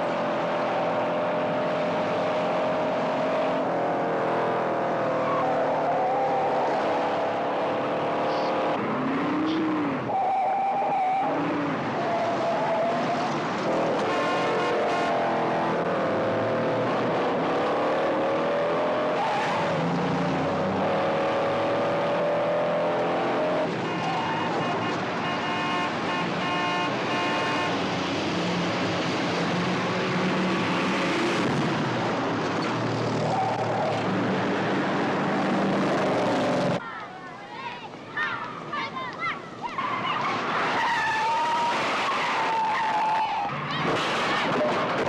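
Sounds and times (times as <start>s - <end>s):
car engines revving hard: 0.0s - 36.8s
tires squealing: 4.8s - 7.5s, 8.2s - 15.8s, 18.0s - 21.6s, 22.2s - 28.1s, 32.6s - 34.4s, 39.3s - 45.0s.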